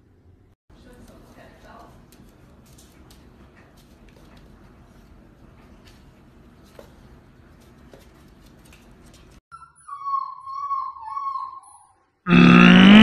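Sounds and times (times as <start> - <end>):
puppy whining: 9.5 - 12.1.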